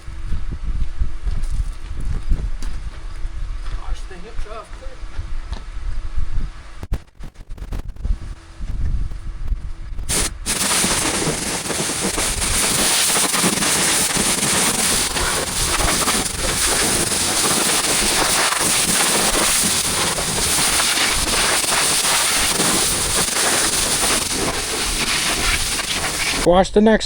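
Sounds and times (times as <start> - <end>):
pressure washer jet hissing: 10.1 - 26.5
spray spattering on metal panels: 10.1 - 26.5.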